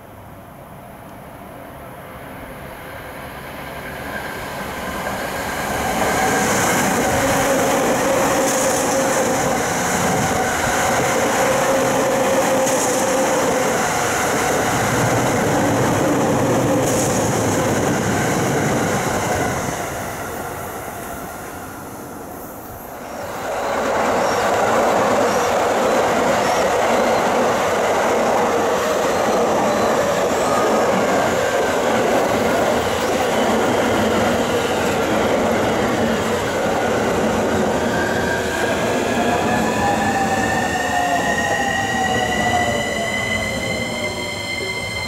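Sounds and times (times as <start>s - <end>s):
electric train passing: 0.0s - 45.0s.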